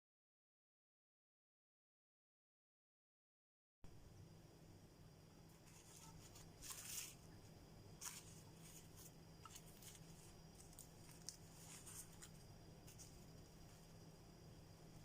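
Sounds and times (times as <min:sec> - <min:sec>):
low electrical hum: 0:03.8 - 0:15.0
faint rustles: 0:05.5 - 0:07.3, 0:08.0 - 0:14.0.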